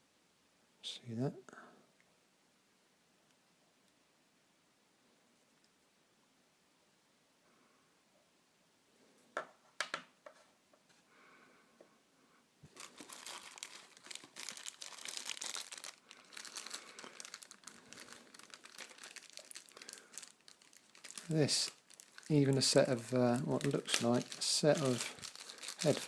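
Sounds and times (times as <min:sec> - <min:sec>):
plastic packaging crinkling: 0:12.7 - 0:26.0.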